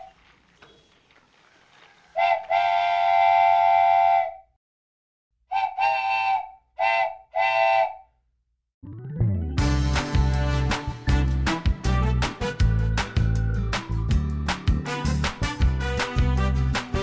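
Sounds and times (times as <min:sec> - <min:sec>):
train whistle blasts: 0:02.2 - 0:04.5, 0:05.5 - 0:08.1.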